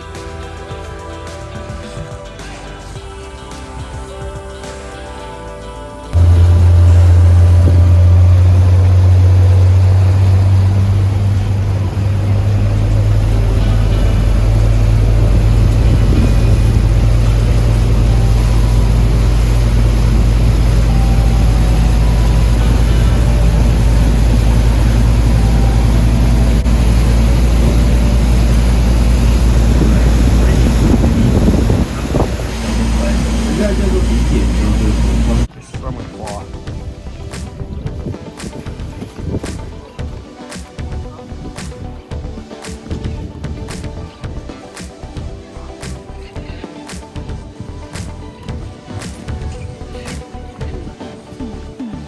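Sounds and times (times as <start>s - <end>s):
boat engine running: 6.1s - 46.6s
wind noise on microphone: 6.2s - 35.5s, 36.8s - 40.2s.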